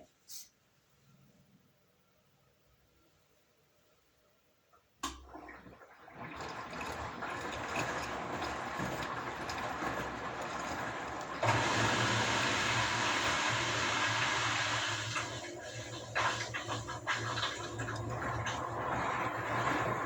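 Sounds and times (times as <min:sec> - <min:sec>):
water rushing through washing machine: 0:05.0 - 0:20.0.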